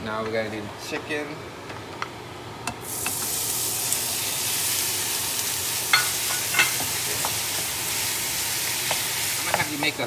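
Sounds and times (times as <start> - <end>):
meat sizzling in hot oil: 2.8 - 10.0.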